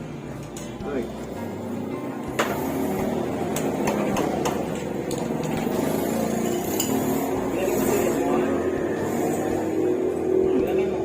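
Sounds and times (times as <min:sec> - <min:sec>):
workshop background din: 0:00.0 - 0:11.0
tool tapping on metal: 0:03.5 - 0:05.8.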